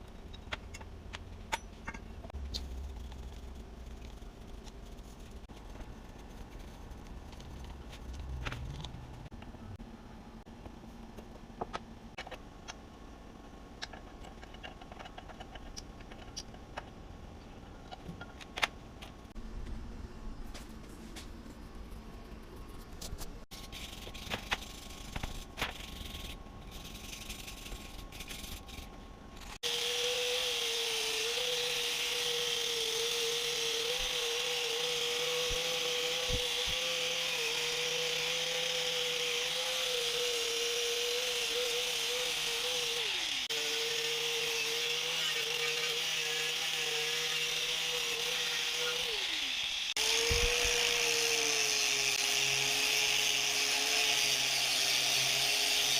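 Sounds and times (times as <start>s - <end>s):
bench grinder whining: 29.6s - 55.9s.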